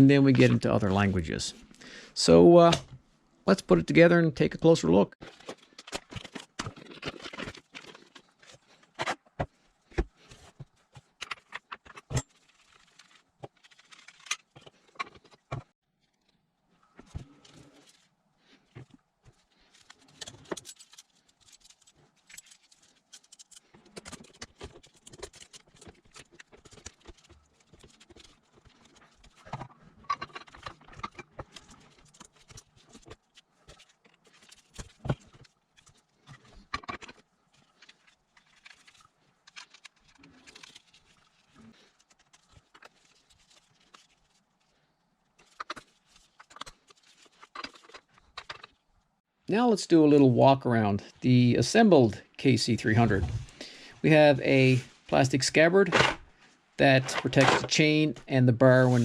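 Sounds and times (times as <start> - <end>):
plastic and metal parts clicking: 19.8 - 41.4.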